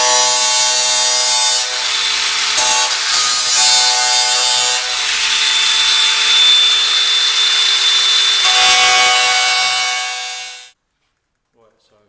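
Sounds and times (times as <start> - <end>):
angle grinder cutting steel: 0.0 - 10.8.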